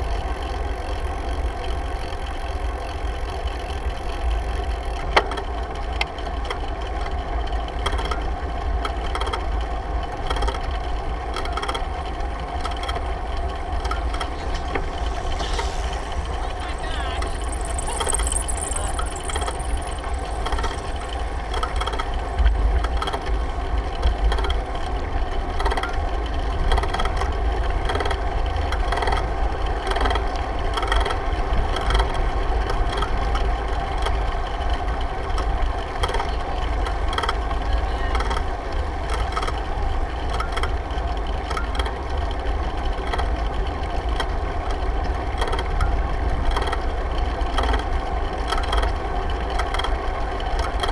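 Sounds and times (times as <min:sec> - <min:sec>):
bicycle tyre and road noise: 0:00.0 - 0:50.9
small rattles and clicks: 0:02.3 - 0:50.9
wind rumbling on microphone: 0:13.1 - 0:24.6.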